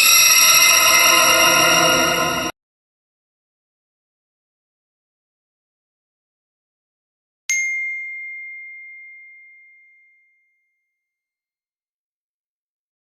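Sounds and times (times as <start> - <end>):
bell ding: 0.0 - 2.5, 7.5 - 10.4.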